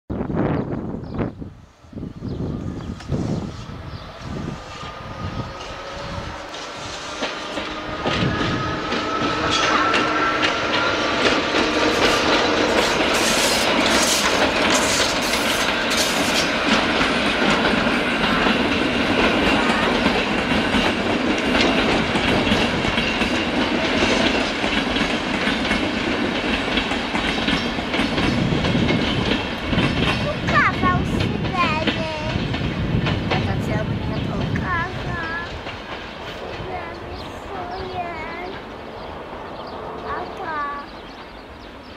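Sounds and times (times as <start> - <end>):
faint locomotive whine: 0.1 - 41.9
train wheels rumbling: 0.1 - 41.9
clickety-clack over rail joints: 4.6 - 41.9.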